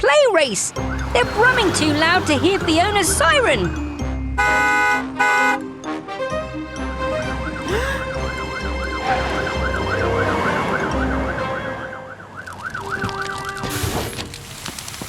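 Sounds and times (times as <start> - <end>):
low engine rumbles: 0.0 - 11.5
cartoon siren wailing: 7.2 - 13.6.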